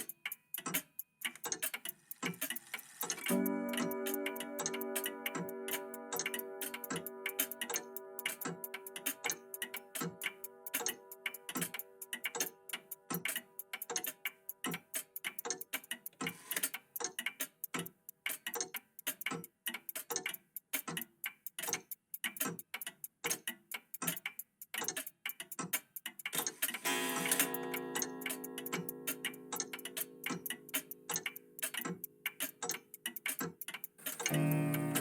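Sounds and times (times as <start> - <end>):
mechanical clocks ticking: 0.0 - 35.0
clock chime ringing: 3.3 - 8.9, 26.9 - 30.2, 34.3 - 35.0.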